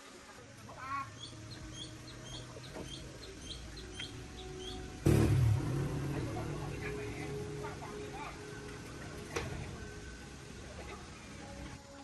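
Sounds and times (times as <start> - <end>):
low steady hum: 0.6 - 11.8
small bird chirping: 0.9 - 5.0
sudden loud rumbling noise: 2.9 - 11.2.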